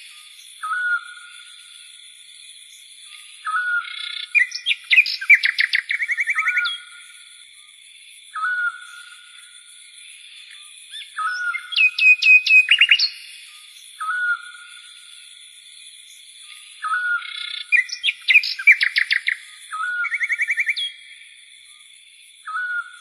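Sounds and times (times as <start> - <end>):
birdsong chirps and trills: 0.0 - 23.0.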